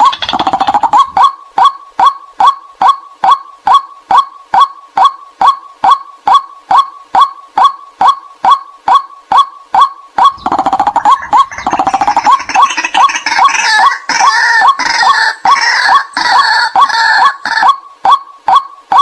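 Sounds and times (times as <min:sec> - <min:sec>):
rapid stuttering chattering: 0:00.0 - 0:01.2, 0:10.3 - 0:14.2
waterhen kwak calls: 0:00.0 - 0:02.6, 0:09.3 - 0:19.0.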